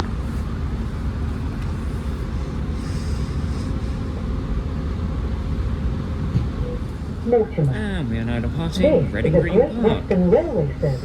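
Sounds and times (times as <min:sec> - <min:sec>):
train diesel engine rumble: 0:00.0 - 0:11.0.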